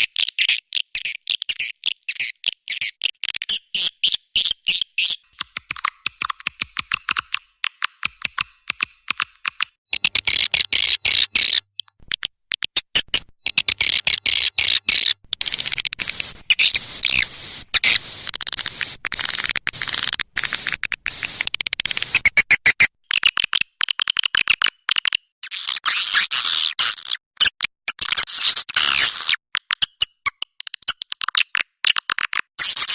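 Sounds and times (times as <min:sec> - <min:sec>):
swiftlets twittering: 0:15.4 - 0:22.2.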